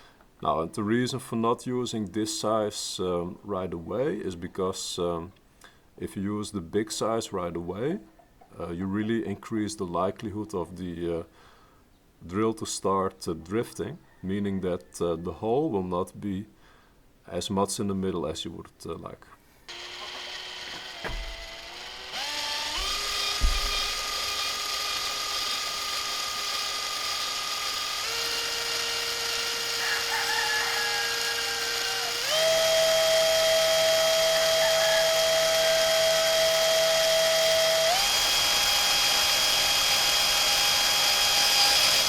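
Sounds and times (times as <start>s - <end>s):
power drill motor whining: 19.7s - 42.0s.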